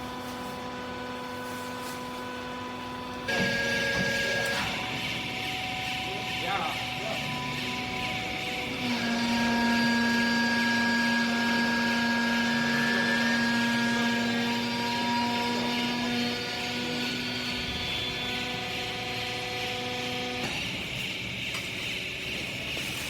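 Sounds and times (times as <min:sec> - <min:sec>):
motor and pump hum: 0:00.0 - 0:23.0.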